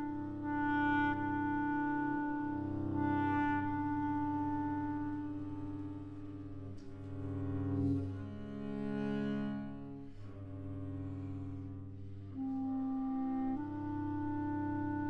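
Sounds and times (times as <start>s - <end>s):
cello: 0.0s - 15.0s
clarinet: 0.0s - 15.0s.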